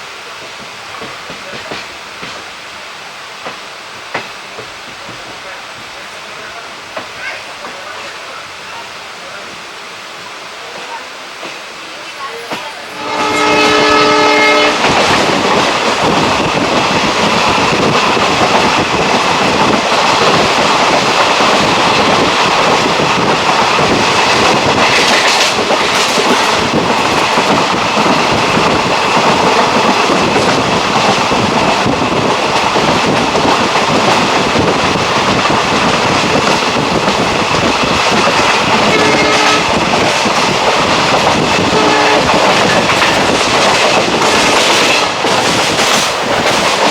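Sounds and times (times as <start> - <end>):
train wheels rumbling on rails: 0.0 - 46.9
locomotive horn: 12.8 - 14.9, 38.8 - 39.8, 41.7 - 42.4.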